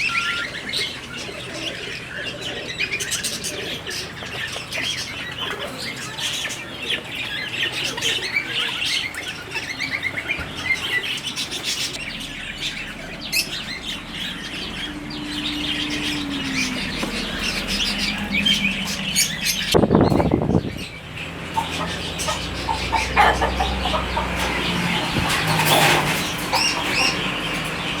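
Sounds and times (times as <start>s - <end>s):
caged birds chirping: 0.0s - 28.0s
steady low hum: 11.9s - 28.0s
loud rushing noise: 12.0s - 27.9s.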